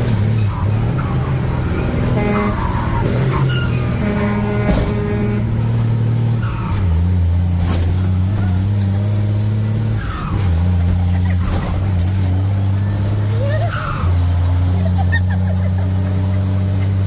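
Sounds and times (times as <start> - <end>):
truck engine droning: 0.0 - 17.0.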